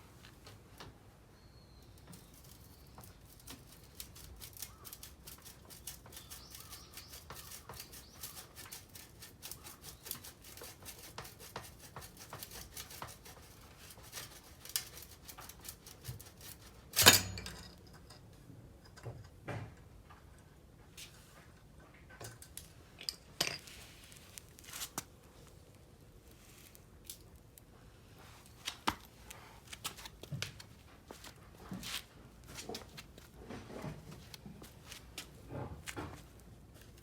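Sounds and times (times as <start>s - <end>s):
metal tools clicking and clinking: 16.9s - 19.1s.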